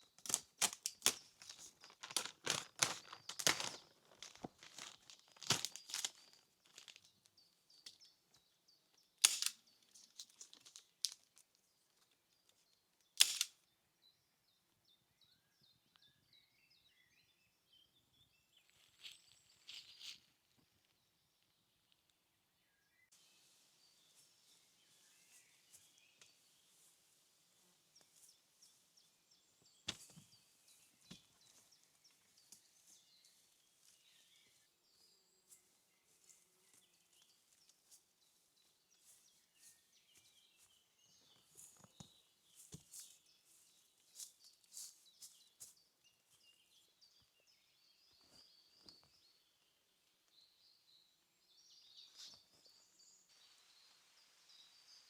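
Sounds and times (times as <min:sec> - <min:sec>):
small clicks and snaps: 0:00.1 - 0:08.0, 0:09.2 - 0:13.6.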